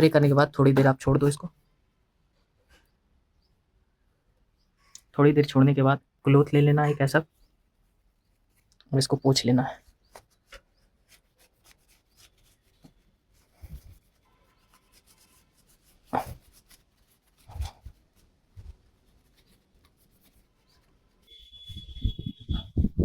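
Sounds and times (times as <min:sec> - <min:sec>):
cloth rubbing brake rotor: 0:09.9 - 0:22.6.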